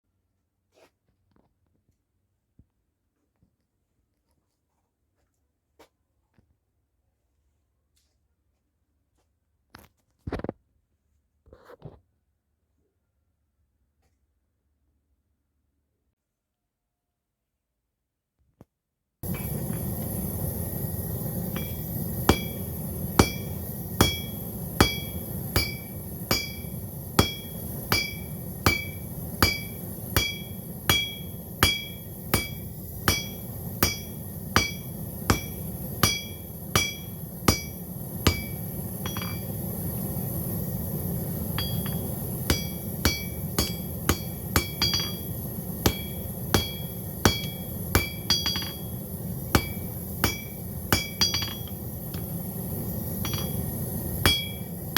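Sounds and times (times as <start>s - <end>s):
hammer ringing on anvil: 21.3s - 39.6s, 41.5s - 51.8s, 53.2s - 54.9s.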